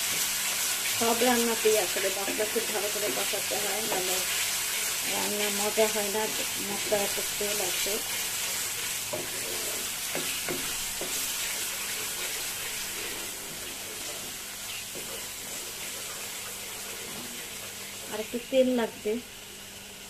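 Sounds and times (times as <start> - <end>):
spatula scraping pan: 0.0 - 18.4
spice paste sizzling in oil: 0.0 - 20.0.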